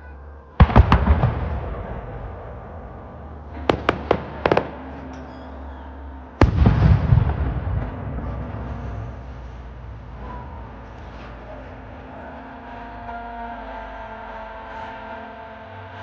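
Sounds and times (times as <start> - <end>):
firework cracks: 0.6 - 2.6, 3.5 - 5.1
heavy firework boom echoing: 0.6 - 5.1, 6.4 - 9.6.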